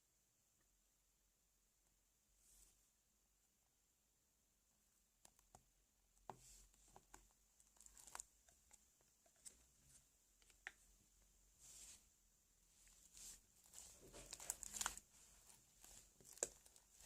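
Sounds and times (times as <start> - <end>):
slime squished by hand: 13.2 - 17.0.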